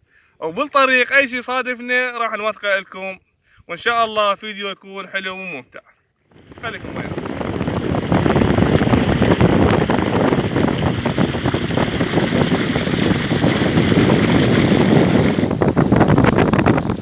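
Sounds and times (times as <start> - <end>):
water rushing and splashing: 6.3 - 17.0
wind buffeting microphone: 6.3 - 17.0.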